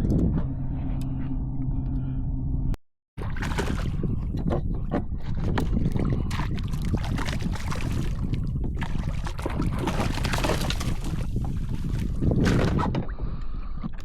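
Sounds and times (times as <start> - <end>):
steady low rumble: 0.0 - 13.8
light splashes and knocks: 3.2 - 13.1
water lapping against kayak hull: 3.2 - 13.9.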